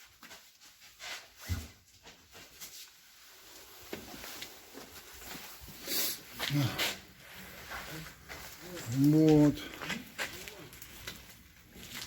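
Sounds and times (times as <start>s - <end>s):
rustles and knocks of handling: 0.0s - 5.8s.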